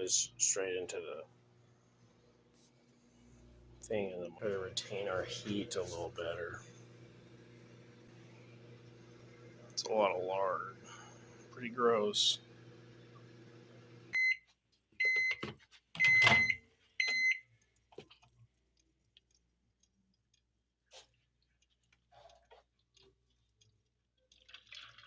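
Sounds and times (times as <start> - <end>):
microwave oven humming: 0.0 - 14.4, 15.0 - 17.4
microwave beeps: 14.1 - 17.5.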